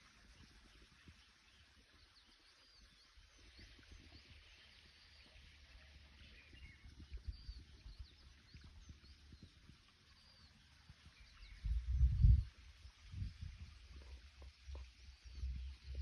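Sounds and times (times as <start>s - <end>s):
low rumbling thumps: 11.6s - 12.5s.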